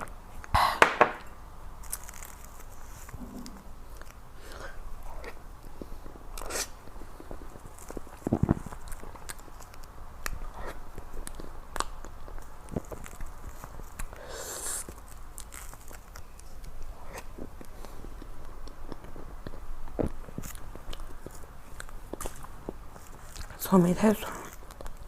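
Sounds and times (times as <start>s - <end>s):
chewing with wet mouth clicks: 5.0s - 14.2s, 14.9s - 23.6s.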